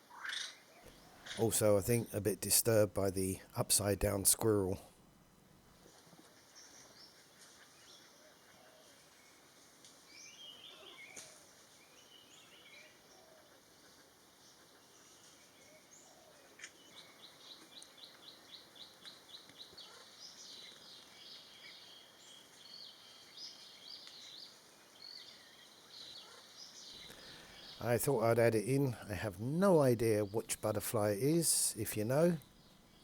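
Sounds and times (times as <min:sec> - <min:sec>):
birds chirping: 0:00.5 - 0:04.8, 0:14.4 - 0:33.0.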